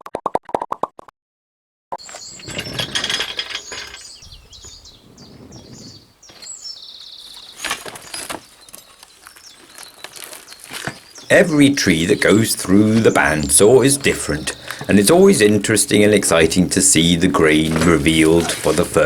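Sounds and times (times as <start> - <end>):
rustling: 2.0 - 19.0
small birds chirping: 2.0 - 19.0.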